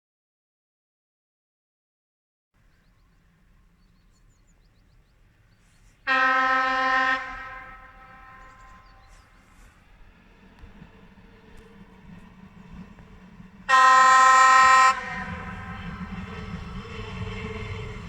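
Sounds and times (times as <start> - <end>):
train horn blast: 5.2 - 18.0.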